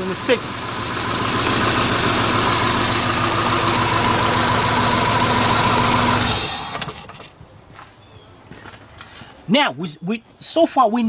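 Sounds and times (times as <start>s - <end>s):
car engine idling rough: 0.0s - 7.1s.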